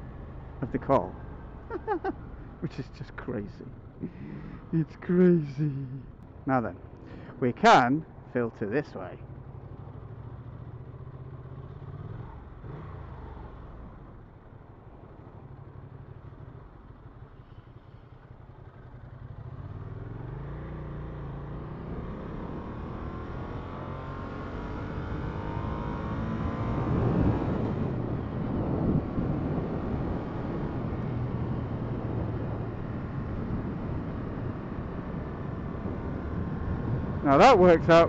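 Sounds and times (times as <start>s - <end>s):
motorcycle engine accelerating: 9.5s - 14.0s, 18.6s - 38.0s.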